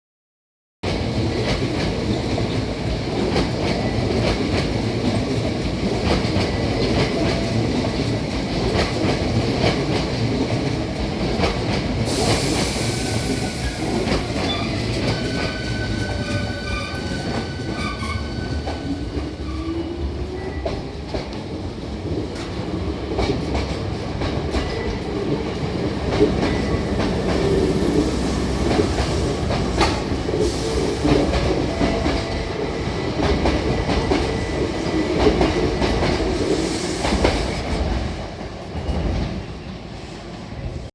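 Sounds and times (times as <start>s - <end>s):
burst of hiss: 12.1s - 14.3s
electric train running: 25.6s - 32.5s.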